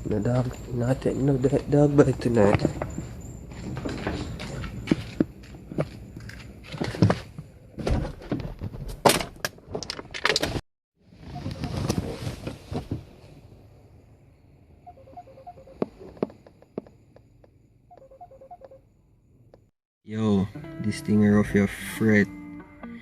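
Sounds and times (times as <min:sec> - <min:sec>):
knocks and thuds: 0:06.8 - 0:09.9.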